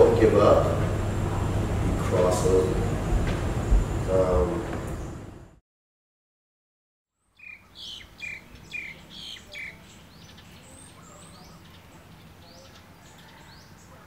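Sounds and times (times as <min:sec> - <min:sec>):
birds chirping: 0:07.2 - 0:14.0.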